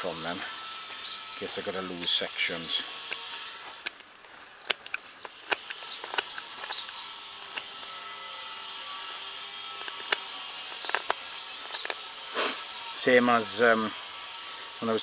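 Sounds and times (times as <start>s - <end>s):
small bird chirping: 0.0s - 2.8s, 5.1s - 7.8s, 10.0s - 12.3s
knife carving wood: 2.9s - 12.7s.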